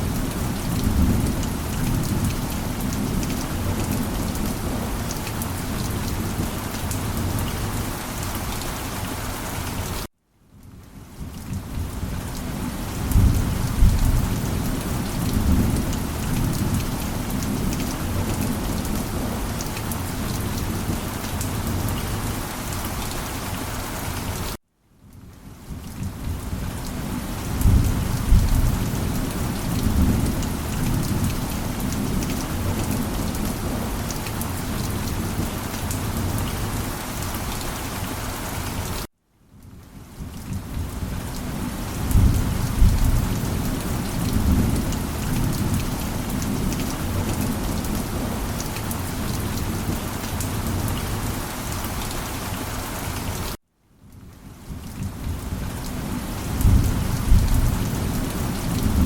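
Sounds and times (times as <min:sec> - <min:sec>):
heavy rain falling: 0:00.0 - 0:10.1, 0:11.0 - 0:24.6, 0:25.4 - 0:39.1, 0:39.8 - 0:53.6, 0:54.2 - 0:59.0
low rolls of thunder: 0:27.5 - 0:31.3, 0:42.1 - 0:47.8, 0:56.5 - 0:59.0.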